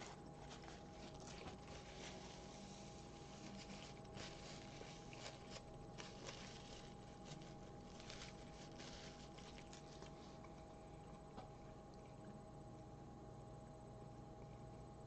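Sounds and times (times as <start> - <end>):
faint hum: 0.0 - 15.0
chewing crunches: 3.4 - 11.2.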